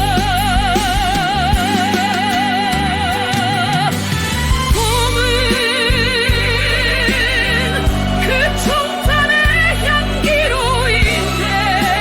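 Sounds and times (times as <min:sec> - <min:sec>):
sustained instrumental backing: 0:00.0 - 0:12.0.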